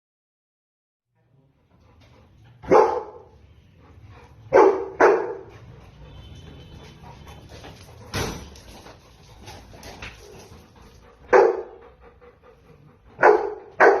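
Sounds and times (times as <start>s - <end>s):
dog barking: 2.6s - 3.4s, 4.5s - 6.2s, 11.3s - 11.8s, 13.2s - 14.0s.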